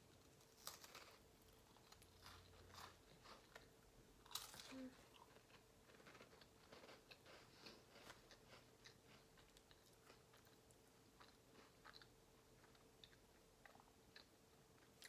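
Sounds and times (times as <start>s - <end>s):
crunching and chewing crackers: 0.0s - 15.0s.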